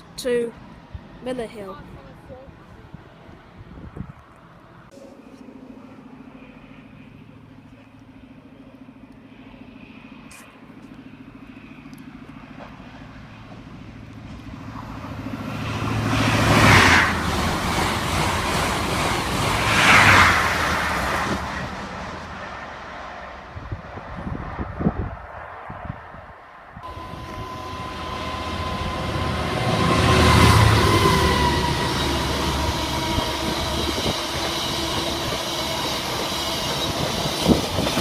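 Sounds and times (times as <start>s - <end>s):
diesel locomotive engine hum: 0.0s - 38.0s
train rushing past: 11.1s - 26.2s, 26.8s - 38.0s.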